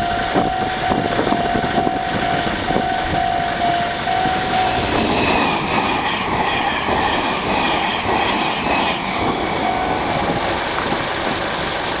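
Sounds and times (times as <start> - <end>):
train wheels rumbling on rails: 0.0 - 12.0
wheels clattering over rail joints: 5.5 - 12.0.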